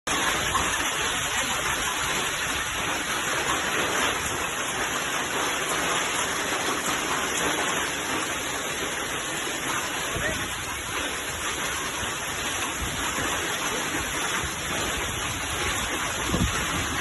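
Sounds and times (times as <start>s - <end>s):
hail and rain falling: 0.1s - 17.0s.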